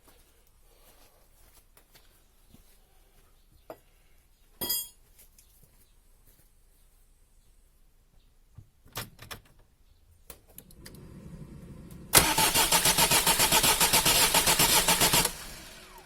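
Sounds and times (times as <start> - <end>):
low hum: 10.7 - 12.2
starter motor cranking diesel engine: 10.7 - 16.0.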